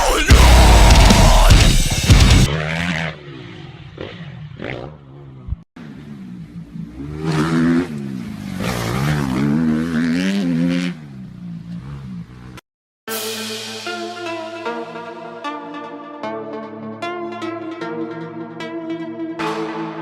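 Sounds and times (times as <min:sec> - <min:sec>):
motocross bike engines revving: 0:00.0 - 0:12.6.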